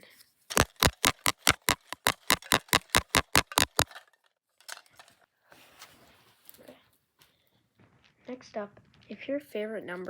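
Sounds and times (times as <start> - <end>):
rapid sharp clicks: 0.5 - 3.9.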